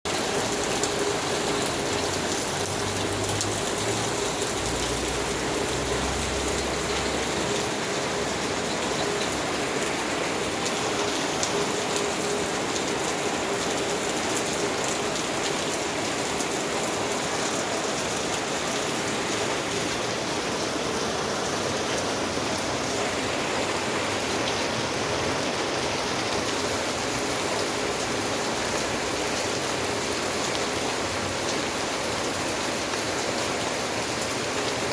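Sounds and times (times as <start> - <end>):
raindrop ticks: 0.1 - 18.4
heavy rain: 0.1 - 34.9.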